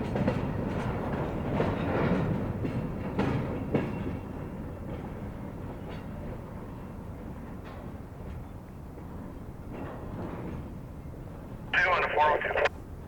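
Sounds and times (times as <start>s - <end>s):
train wheels clicking over rail joints: 0.0s - 10.8s.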